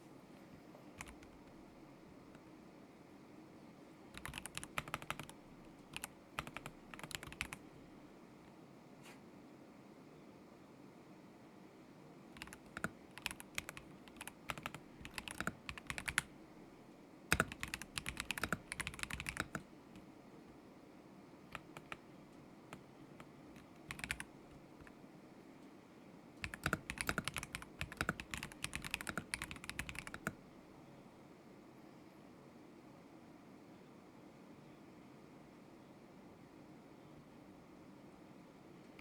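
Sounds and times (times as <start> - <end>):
mechanical keyboard typing: 1.0 - 1.6, 4.1 - 7.6, 12.4 - 16.3, 17.3 - 19.7, 21.5 - 22.0, 23.6 - 24.9, 26.4 - 30.4.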